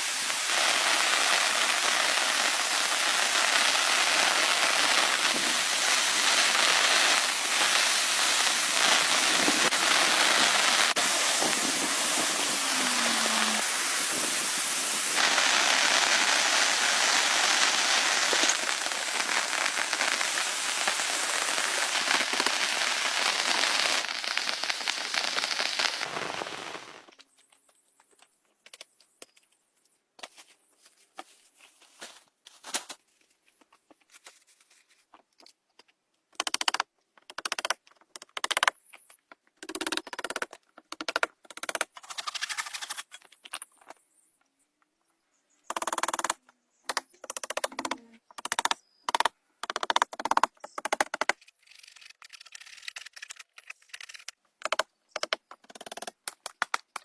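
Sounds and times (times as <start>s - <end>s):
heavy rain falling: 0.0s - 27.1s
short loud noisy bursts: 3.8s - 27.1s.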